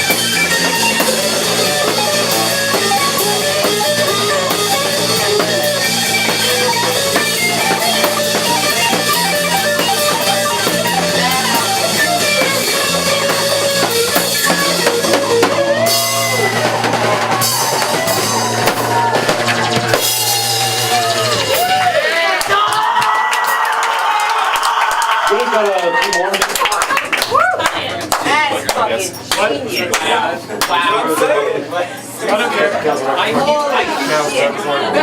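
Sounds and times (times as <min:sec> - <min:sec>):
sliding bending guitar notes: 0:00.0 - 0:21.9
electric guitar: 0:00.0 - 0:22.1
bass guitar: 0:00.0 - 0:22.2
drum kit: 0:00.0 - 0:23.8.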